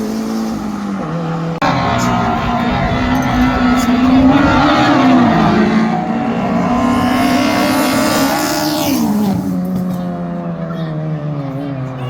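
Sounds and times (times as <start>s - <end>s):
car engine running hard: 0.0s - 12.0s.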